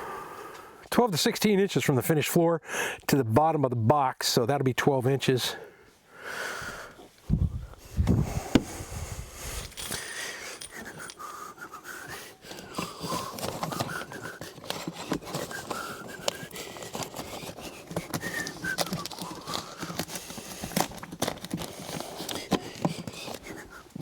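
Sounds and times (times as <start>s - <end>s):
panting breaths: 7.8s - 24.0s
knocks and handling clicks: 9.6s - 11.2s.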